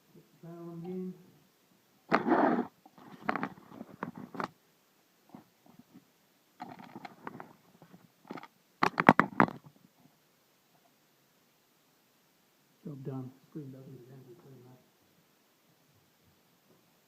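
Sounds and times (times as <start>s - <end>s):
hands handling a monitor: 2.9s - 4.6s.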